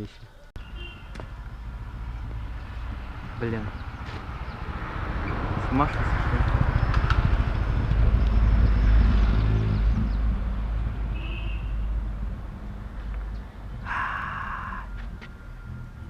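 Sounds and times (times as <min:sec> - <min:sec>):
vehicle horn blast: 0:00.6 - 0:01.1, 0:11.2 - 0:11.9
vehicle engine rumbling: 0:00.6 - 0:16.0.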